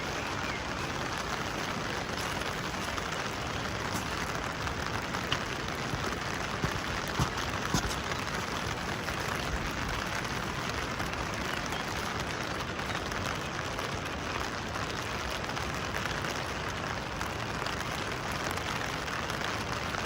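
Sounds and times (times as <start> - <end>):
water drips: 0.0 - 14.1
steady rain: 0.0 - 20.0.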